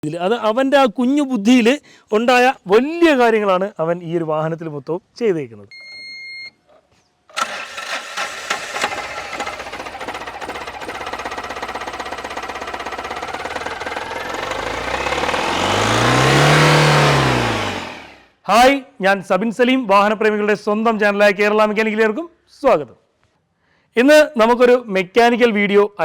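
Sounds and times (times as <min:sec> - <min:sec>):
diesel engine running and revving: 0:07.4 - 0:18.3.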